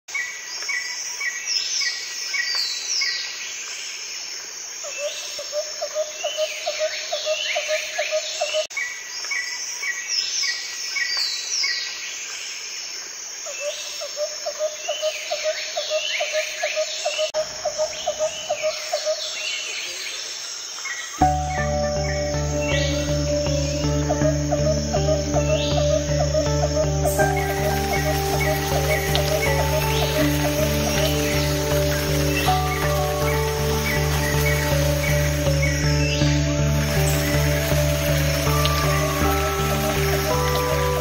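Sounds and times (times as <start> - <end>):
birds chirping: 14.8 - 41.0
pulsing low trill: 21.2 - 41.0.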